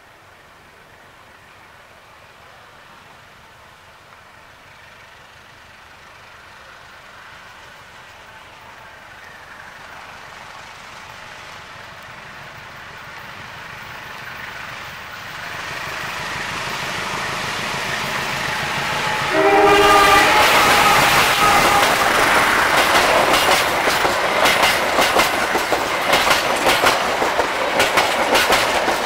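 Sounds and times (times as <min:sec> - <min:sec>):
train wheels on rails: 0:00.0 - 0:29.0
locomotive engine: 0:02.3 - 0:29.0
train horn: 0:17.0 - 0:23.6.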